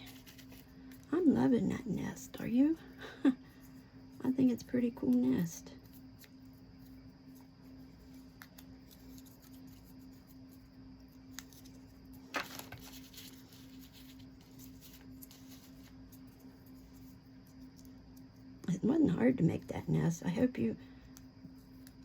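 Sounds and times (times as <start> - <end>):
paper rustle: 0.0 - 1.1, 11.3 - 17.1
steady low hum: 0.0 - 22.0
small ticks: 5.0 - 12.2, 13.1 - 18.7, 20.9 - 22.0.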